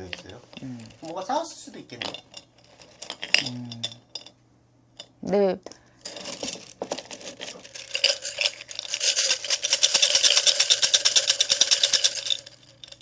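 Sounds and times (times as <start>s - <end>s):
small metal objects jingling: 6.0s - 13.0s.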